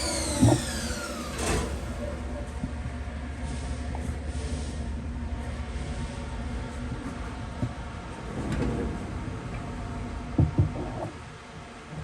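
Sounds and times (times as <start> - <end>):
lathe spindle humming: 0.0 - 2.2.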